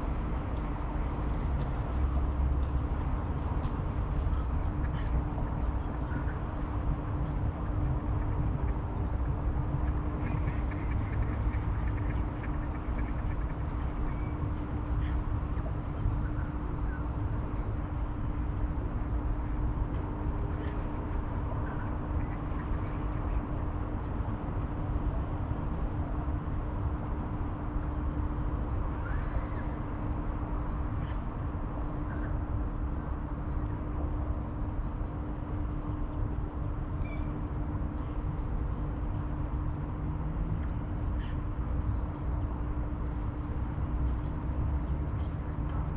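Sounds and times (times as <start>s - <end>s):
constant hum: 0.0s - 45.9s
faint bird calls: 10.2s - 17.2s, 28.9s - 29.9s, 30.9s - 32.9s, 41.1s - 42.4s.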